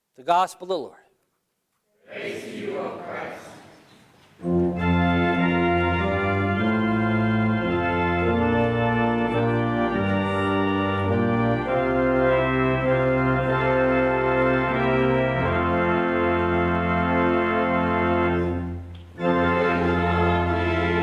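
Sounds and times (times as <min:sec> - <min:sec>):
church organ chords: 0:04.4 - 0:21.0.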